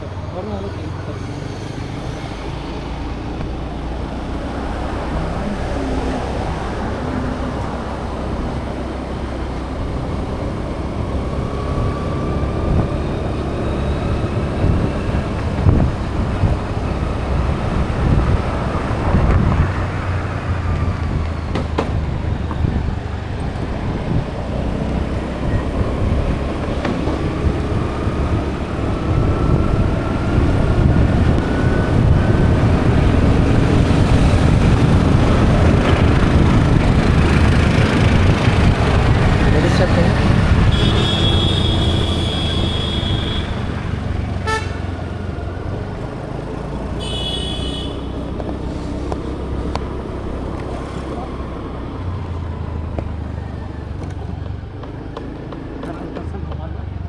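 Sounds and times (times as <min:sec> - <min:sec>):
vehicle engine and road noise: 0:00.0 - 0:57.0
wind buffeting microphone: 0:01.8 - 0:46.9.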